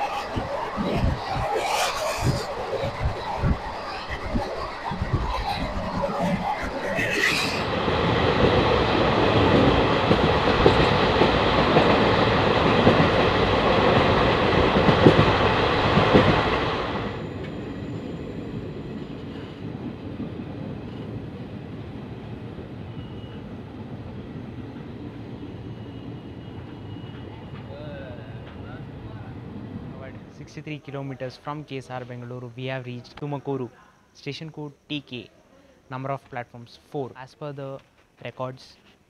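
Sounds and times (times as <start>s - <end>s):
train wheels and wind rushing: 0.0s - 30.6s.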